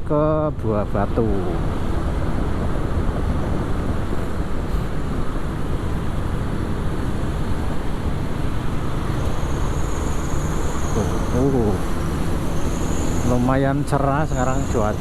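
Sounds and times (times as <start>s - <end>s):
wind rushing on microphone: 0.6s - 15.0s
tyre noise on road: 1.5s - 15.0s
motorcycle engine: 5.9s - 15.0s.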